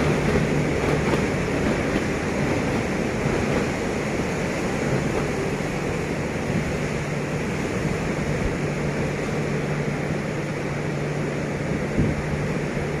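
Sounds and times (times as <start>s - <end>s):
train running with low hum: 0.0s - 13.0s.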